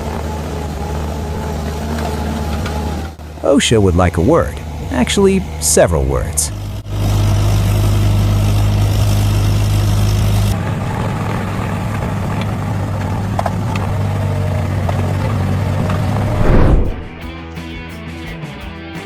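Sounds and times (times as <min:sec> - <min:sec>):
quieter engine drone: 0:00.0 - 0:17.2
engine running steadily: 0:00.0 - 0:17.3.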